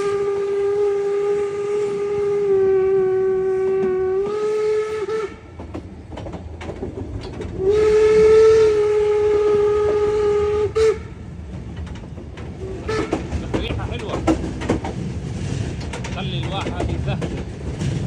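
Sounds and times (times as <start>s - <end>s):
steam locomotive whistle: 0.0s - 5.6s, 7.6s - 11.2s, 12.6s - 13.4s
train rumbling and clattering: 0.0s - 18.0s.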